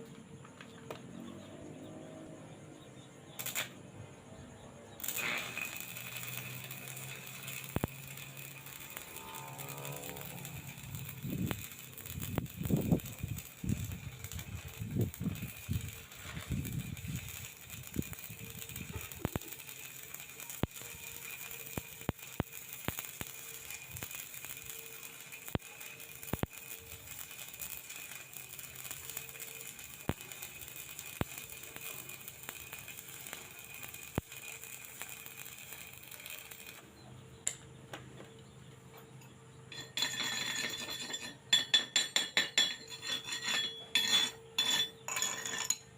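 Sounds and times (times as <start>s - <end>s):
welding arc crackling: 3.4s - 3.8s, 5.0s - 37.6s.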